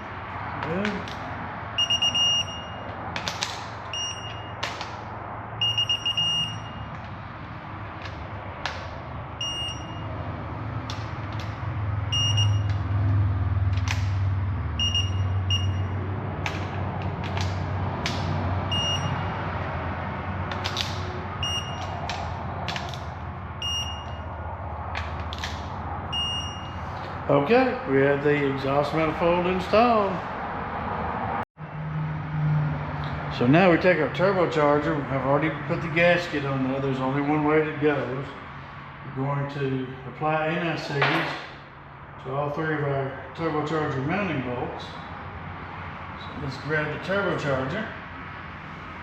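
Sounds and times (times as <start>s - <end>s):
torque wrench short beeps: 5.6s - 6.9s, 14.8s - 15.9s, 23.6s - 24.2s.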